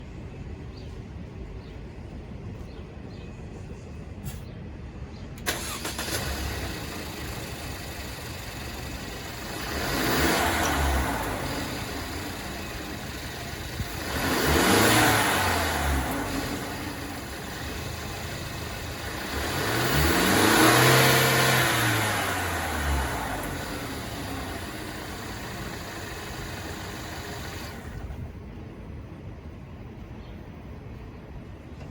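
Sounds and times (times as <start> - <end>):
van engine idling: 4.2 - 29.2
engine revving: 5.4 - 28.2
van engine cranking and starting: 5.4 - 28.4.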